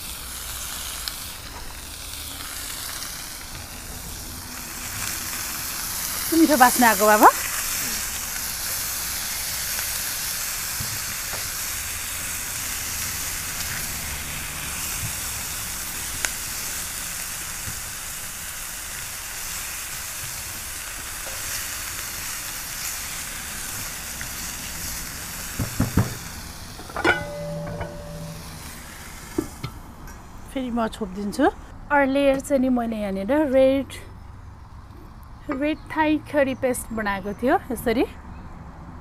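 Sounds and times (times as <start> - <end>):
chicken and onions sizzling in pan: 0.0 - 29.6.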